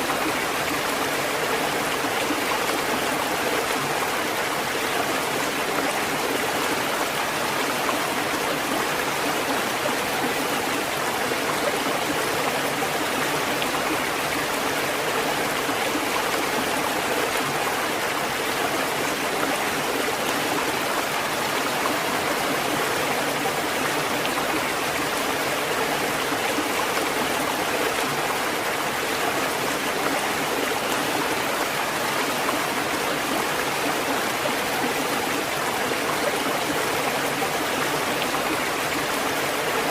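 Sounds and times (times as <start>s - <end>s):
steady rush of water: 0.0s - 39.9s.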